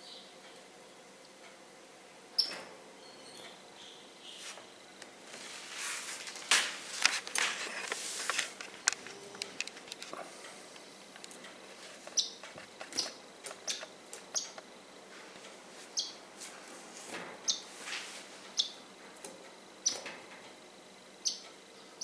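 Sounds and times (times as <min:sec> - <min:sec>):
pet birds chirping: 0:00.0 - 0:00.6, 0:02.4 - 0:04.5, 0:12.1 - 0:14.6, 0:15.9 - 0:16.2, 0:17.5 - 0:17.7, 0:18.5 - 0:18.8, 0:19.8 - 0:20.0, 0:21.2 - 0:22.0
clicks and rustling of pecking: 0:06.2 - 0:15.6.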